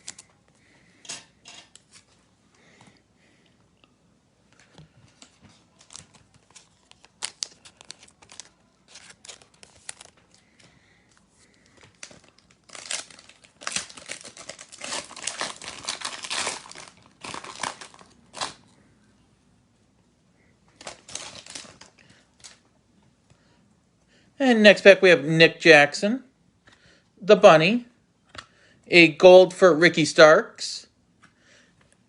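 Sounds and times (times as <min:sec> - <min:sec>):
cards being handled: 0:04.6 - 0:18.6
card pack wrapper tearing: 0:05.7 - 0:10.4, 0:11.8 - 0:18.6, 0:20.8 - 0:22.6.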